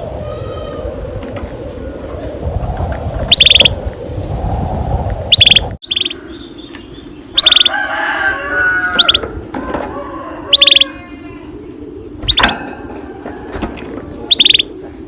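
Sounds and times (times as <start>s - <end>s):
canary singing in trills: 3.3s - 3.8s, 5.3s - 9.3s, 10.4s - 14.9s.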